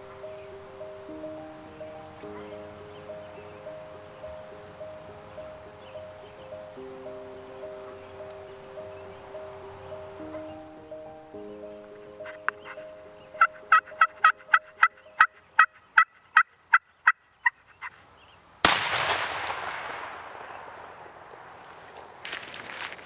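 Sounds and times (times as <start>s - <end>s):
shotgun blast echoing: 18.6s - 21.7s.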